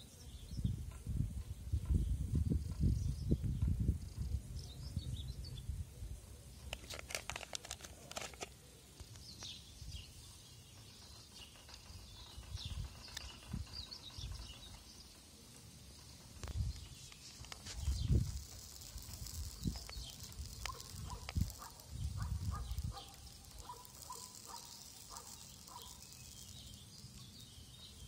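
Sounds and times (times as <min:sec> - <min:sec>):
small birds chirping: 0:00.0 - 0:28.0
wind rumble on microphone: 0:00.4 - 0:06.2, 0:12.1 - 0:14.7, 0:17.7 - 0:23.8
sharp clicks: 0:16.3 - 0:27.4.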